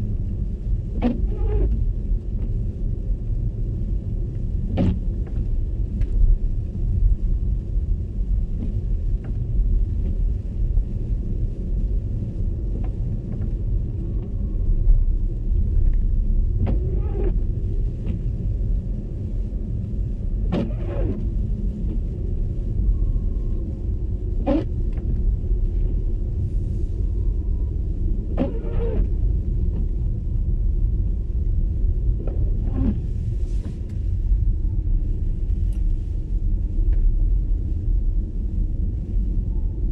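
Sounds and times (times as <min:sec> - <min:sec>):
road and tyre rumble: 0:00.0 - 0:39.9.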